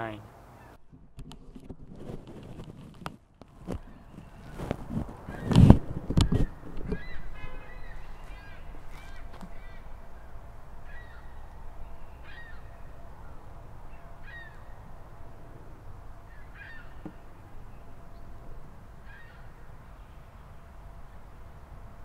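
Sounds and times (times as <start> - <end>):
steady low rumble: 3.5 - 22.0
short bird calls with bending pitch: 6.3 - 15.1.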